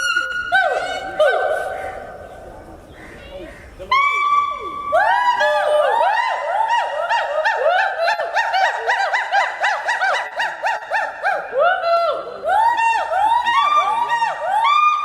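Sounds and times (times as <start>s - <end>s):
gibbon hooting whoops: 0.0s - 1.7s, 3.9s - 15.0s.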